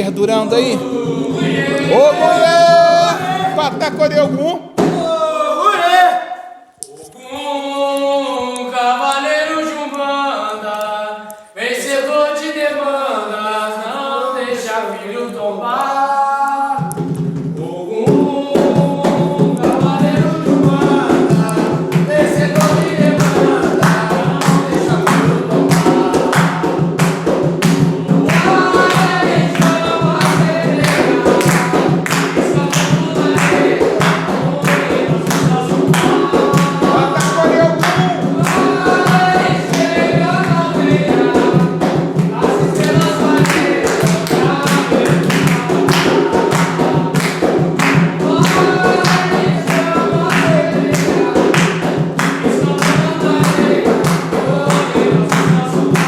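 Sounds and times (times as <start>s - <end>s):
hand percussion beat: 0.0s - 5.3s, 16.6s - 56.0s
group singing a chant: 0.0s - 56.0s.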